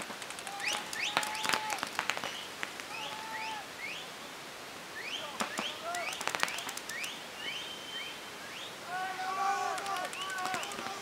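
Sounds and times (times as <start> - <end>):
birds chirping: 0.5 - 11.0
paintball markers firing: 5.4 - 7.2, 9.7 - 11.0.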